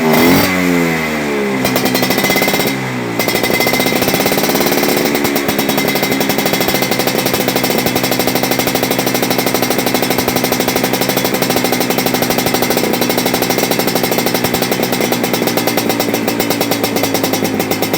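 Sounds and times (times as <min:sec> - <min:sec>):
scooter engine idling: 0:00.0 - 0:17.9.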